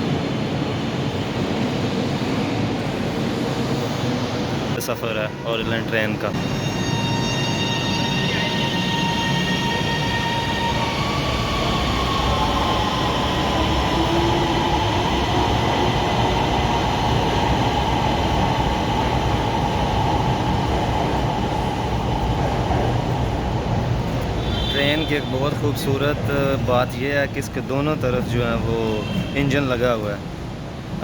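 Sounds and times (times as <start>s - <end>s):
train wheels rumbling: 0.0s - 31.0s.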